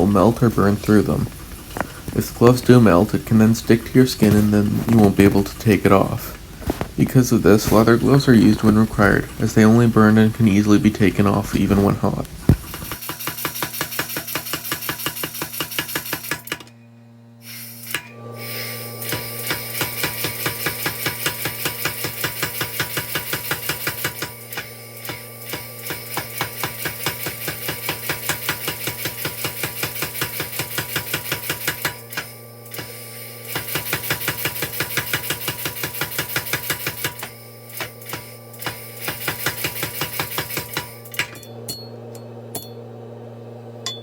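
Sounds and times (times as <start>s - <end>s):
low hum: 41.1s - 44.0s.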